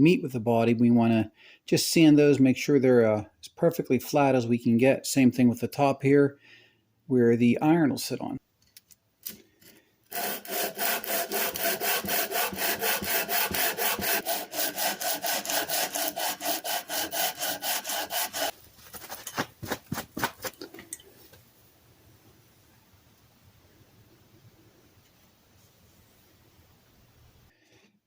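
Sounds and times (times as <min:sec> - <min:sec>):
metal rasping on sandpaper: 0:10.1 - 0:19.4.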